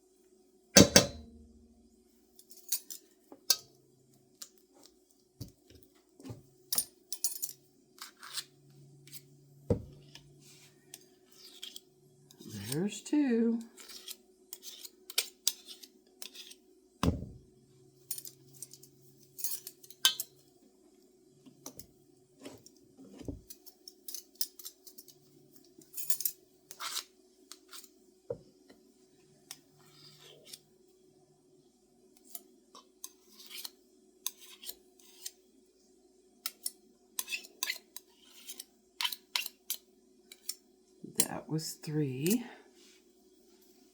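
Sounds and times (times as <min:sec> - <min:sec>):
metal spoon scraping and clinking: 0:06.7 - 0:08.5, 0:10.8 - 0:13.0, 0:13.8 - 0:16.6, 0:18.1 - 0:20.3, 0:23.5 - 0:27.9, 0:33.0 - 0:35.4, 0:36.5 - 0:40.6.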